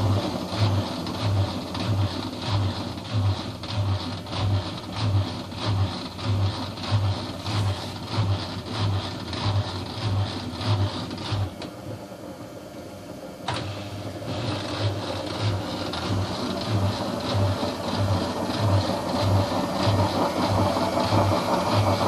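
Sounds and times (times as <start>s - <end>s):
washing machine throbbing hum: 0.0s - 22.0s.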